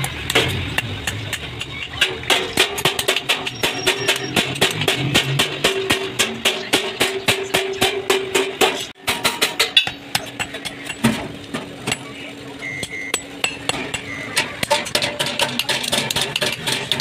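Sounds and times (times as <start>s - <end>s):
hammer striking metal: 0.0s - 11.3s, 12.8s - 17.0s.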